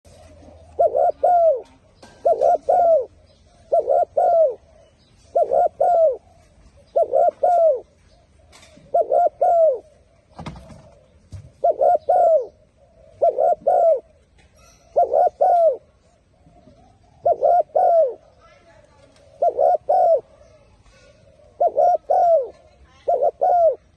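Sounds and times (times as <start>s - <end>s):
dove cooing: 0.1s - 23.9s
small birds chirping: 0.1s - 23.9s.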